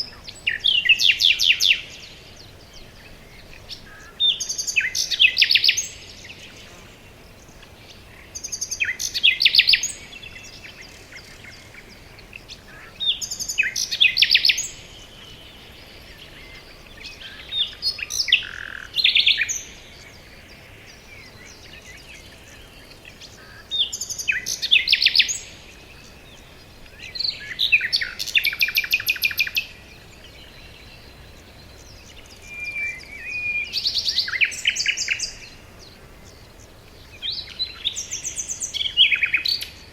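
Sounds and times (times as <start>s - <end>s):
forest ambience hiss: 0.0s - 39.9s
songbird trilling: 0.0s - 39.9s.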